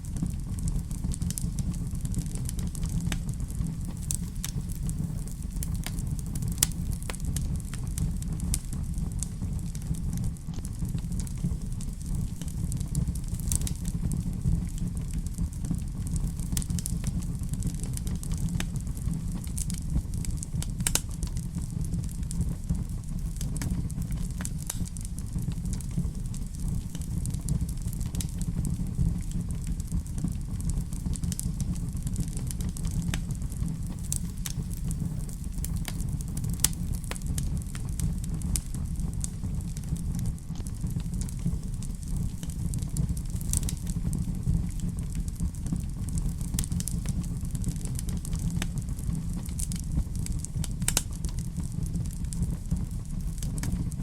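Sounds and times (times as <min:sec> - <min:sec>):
steady low rumble: 0:00.0 - 0:54.0
wood fire crackling and popping: 0:00.0 - 0:54.0.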